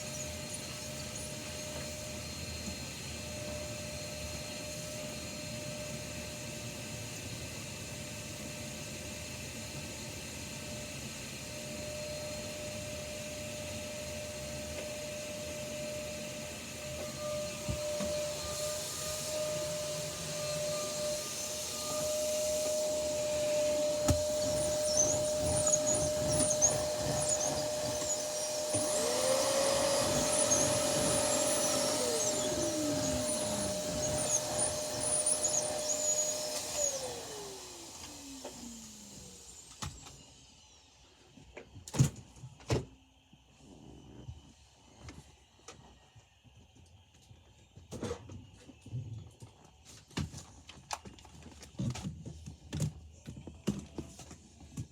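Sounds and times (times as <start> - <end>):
vacuum cleaner motor whining: 0.0 - 47.1
second vacuum cleaner running: 0.0 - 54.9.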